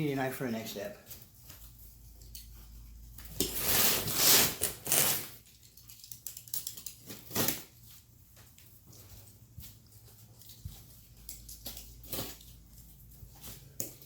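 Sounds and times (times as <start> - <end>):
packaging being cut and torn: 3.4 - 5.4.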